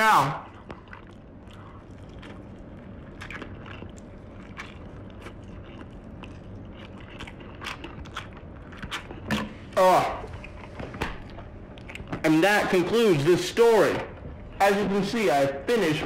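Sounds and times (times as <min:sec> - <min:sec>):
person chewing chicken: 0:00.3 - 0:12.3.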